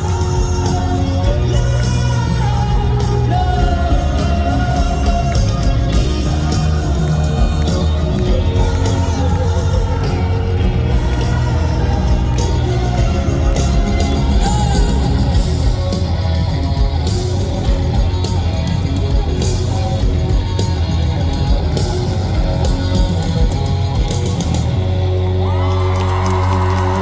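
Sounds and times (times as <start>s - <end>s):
crowd yelling: 0.0s - 27.0s
drums: 0.0s - 27.0s
live rock band playing: 0.0s - 27.0s.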